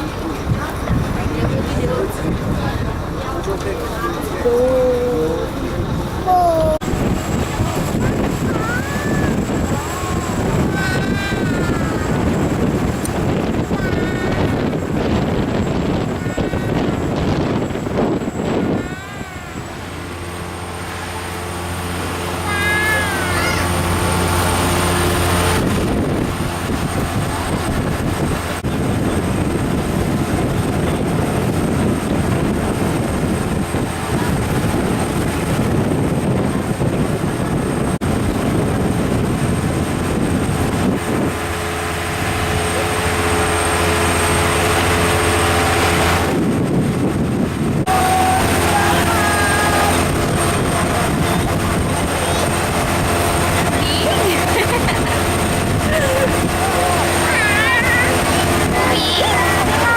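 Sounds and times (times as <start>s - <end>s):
boat engine humming: 0.0s - 59.9s.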